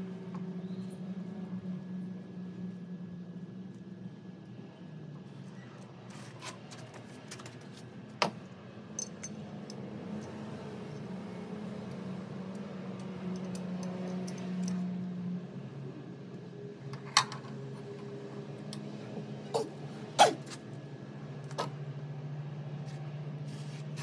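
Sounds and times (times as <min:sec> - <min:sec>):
small metal parts clinking: 0:09.0 - 0:10.4, 0:13.0 - 0:14.8.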